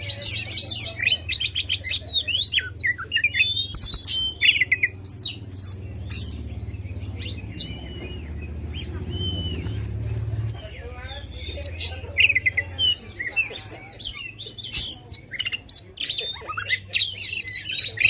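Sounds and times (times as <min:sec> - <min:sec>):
songbird singing whistles and trills: 0:00.0 - 0:10.0, 0:11.1 - 0:18.0.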